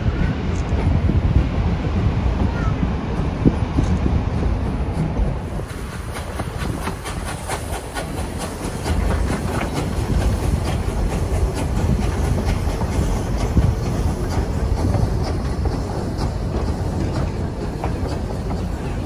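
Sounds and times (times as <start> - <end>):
train cars rumbling: 0.0 - 19.0
wheels clicking over rails: 4.9 - 19.0.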